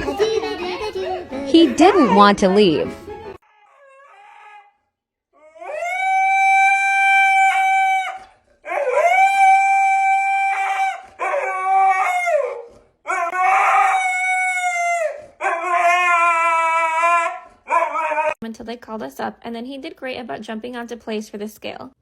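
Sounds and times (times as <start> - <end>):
dog howling: 3.4 - 18.4.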